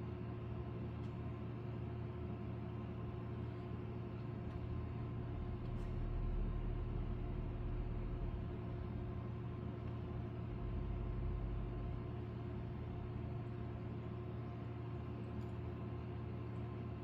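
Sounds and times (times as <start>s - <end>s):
air conditioner humming: 0.0s - 17.0s
low rumble: 4.5s - 13.8s.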